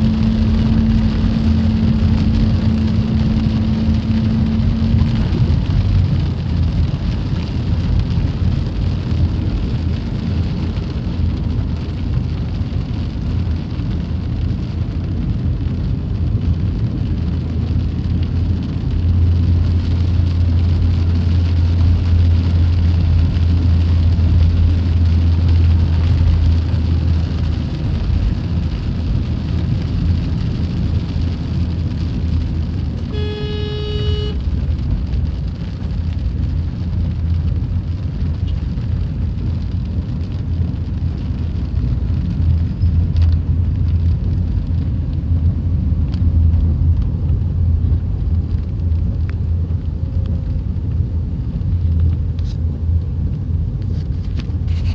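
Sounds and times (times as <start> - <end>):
low rumble: 0.0 - 54.9
steady rain: 0.0 - 54.9
pitched tone with overtones: 33.1 - 34.4.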